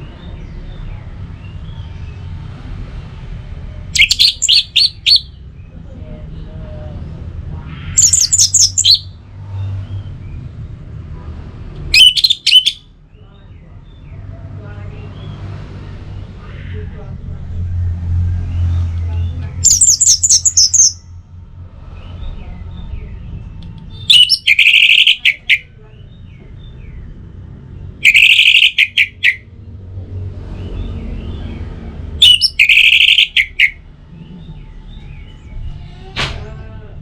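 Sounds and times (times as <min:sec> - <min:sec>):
thrush singing: 0:04.0 - 0:05.3, 0:08.0 - 0:09.1, 0:11.9 - 0:12.8, 0:19.6 - 0:21.0, 0:24.0 - 0:25.6, 0:28.0 - 0:29.4, 0:32.2 - 0:33.8
faint bird chirps: 0:04.0 - 0:05.4, 0:07.9 - 0:09.1, 0:11.9 - 0:12.8, 0:19.6 - 0:21.0, 0:24.0 - 0:25.7, 0:28.0 - 0:29.4, 0:32.2 - 0:34.7.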